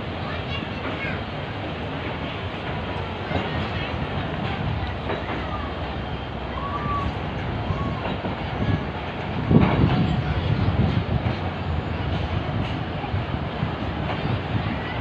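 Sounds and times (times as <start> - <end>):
train wheels rumbling on rails: 0.0 - 15.0
train wheel knock: 7.3 - 15.0.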